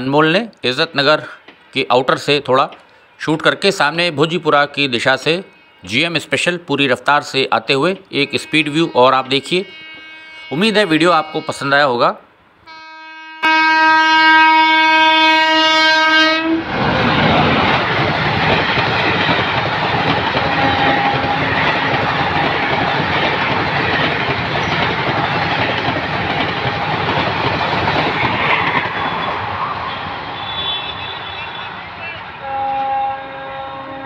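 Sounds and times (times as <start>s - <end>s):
train horn: 5.2s - 6.6s, 8.2s - 11.9s, 12.7s - 16.8s, 20.4s - 23.1s, 29.0s - 34.0s
wheels on rails: 16.7s - 31.6s.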